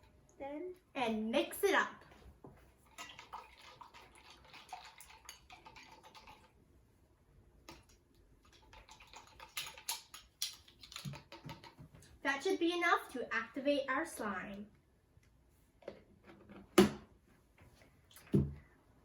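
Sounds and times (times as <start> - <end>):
liquid sloshing in a cup: 2.6 - 6.7, 7.6 - 12.0.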